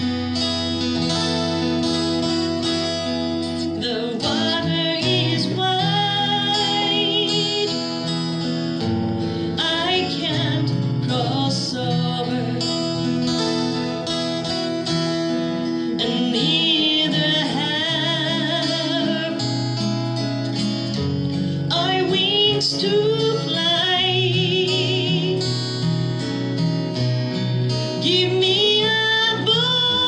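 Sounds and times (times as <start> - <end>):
acoustic guitar: 0.0 - 30.0
woman singing with vibrato: 3.4 - 13.3, 15.8 - 19.8, 21.6 - 25.9, 27.9 - 30.0.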